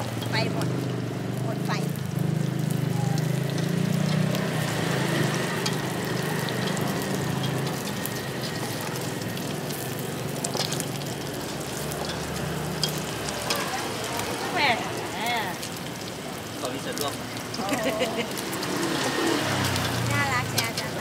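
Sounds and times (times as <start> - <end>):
omelette sizzling in hot oil: 0.0 - 21.0
metal spatula clicks on pan: 5.6 - 7.9.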